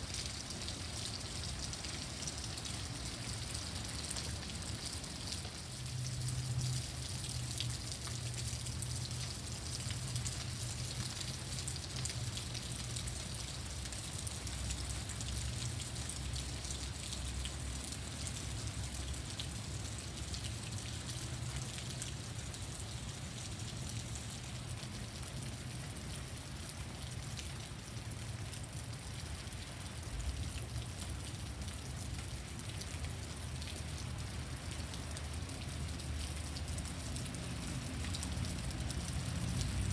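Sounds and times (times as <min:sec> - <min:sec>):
heavy rain pouring: 0:28.3 - 0:39.9.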